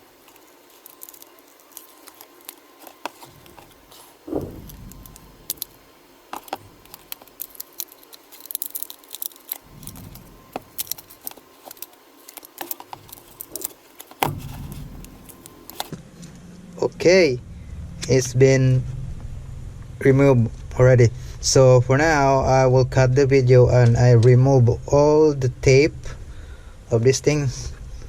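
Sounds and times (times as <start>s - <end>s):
prying tools clicking and scraping: 0.0s - 15.9s
loud knock: 4.3s - 5.6s.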